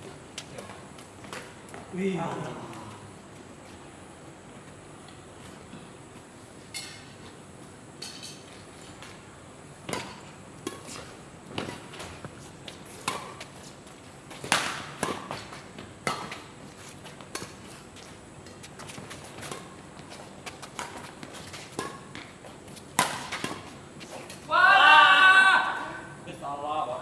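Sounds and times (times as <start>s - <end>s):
racket hitting shuttlecock: 13.0s - 13.6s, 14.4s - 16.6s, 20.6s - 24.5s.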